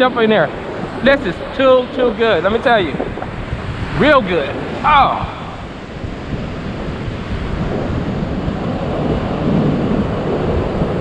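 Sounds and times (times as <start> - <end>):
ocean surf washing in: 0.0 - 11.0
wind buffeting microphone: 0.0 - 11.0.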